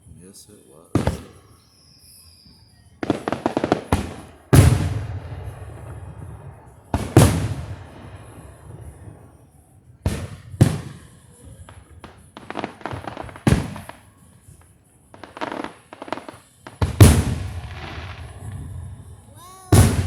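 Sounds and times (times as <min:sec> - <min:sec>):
fireworks crackling: 0:00.0 - 0:20.0
fireworks booming: 0:00.9 - 0:14.6, 0:15.2 - 0:20.0
sharp bangs: 0:01.0 - 0:01.5, 0:16.0 - 0:20.0.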